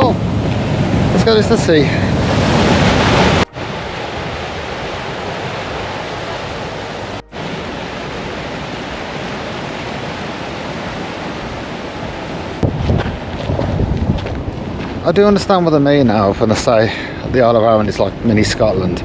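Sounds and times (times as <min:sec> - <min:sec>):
fast-flowing water rushing: 0:00.2 - 0:12.8.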